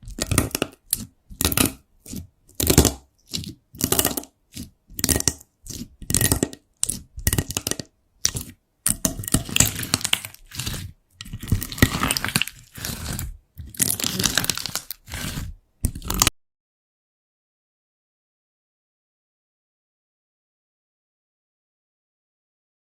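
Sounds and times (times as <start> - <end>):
slime crackling and popping: 0.1 - 1.8, 2.5 - 16.3.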